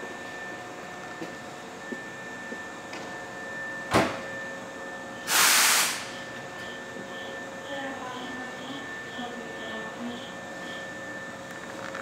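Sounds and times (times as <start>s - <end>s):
electric train humming: 0.0s - 12.0s
air hiss: 5.3s - 6.1s
faint steady tones: 6.6s - 11.2s.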